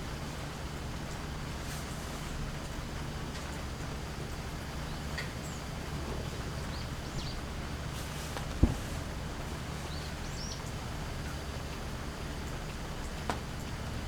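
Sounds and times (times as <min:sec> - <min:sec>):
small birds chirping: 0:06.5 - 0:07.6, 0:09.8 - 0:10.8
sharp low thump: 0:08.6 - 0:09.1.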